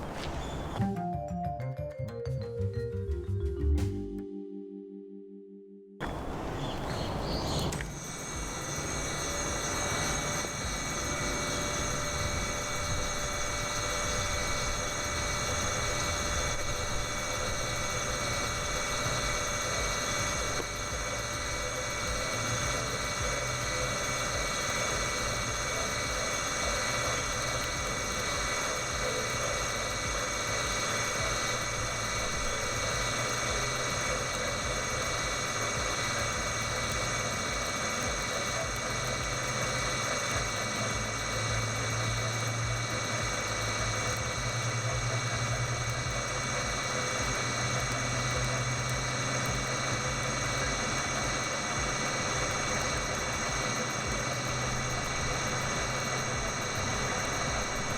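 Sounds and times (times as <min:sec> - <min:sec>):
centrifuge humming and whining: 0:06.0 - 0:57.9.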